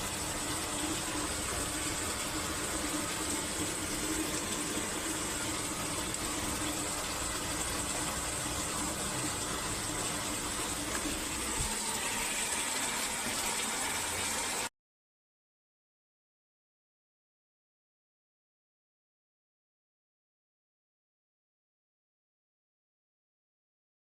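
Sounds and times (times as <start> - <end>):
water rushing in washing machine: 0.0 - 14.7.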